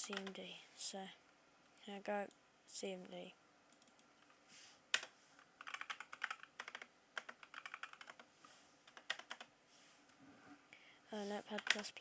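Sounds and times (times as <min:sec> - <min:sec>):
computer keyboard typing: 0:00.0 - 0:00.4, 0:03.7 - 0:04.1, 0:04.9 - 0:09.5, 0:11.5 - 0:12.0.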